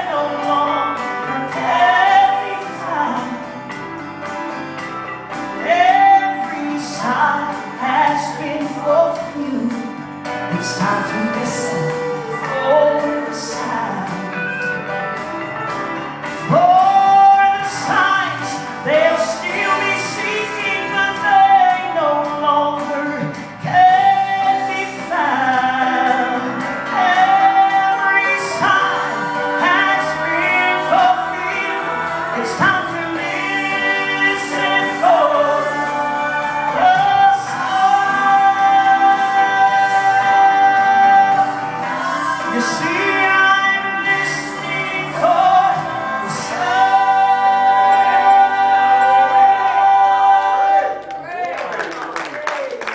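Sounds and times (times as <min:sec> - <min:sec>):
instrumental accompaniment with beat: 0:00.0 - 0:51.0
woman singing gospel: 0:05.6 - 0:14.8.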